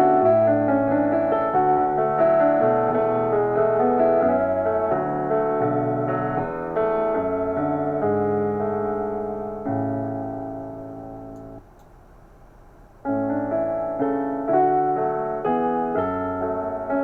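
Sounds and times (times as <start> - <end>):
slow piano chords: 0.0 - 11.8, 13.0 - 17.0.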